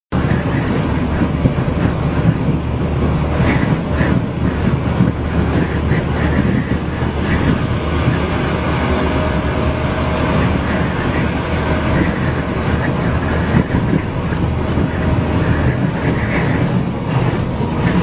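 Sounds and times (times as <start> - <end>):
strong wind noise: 0.1 - 18.0
vehicle road noise: 0.1 - 18.0
low drone: 0.2 - 18.0.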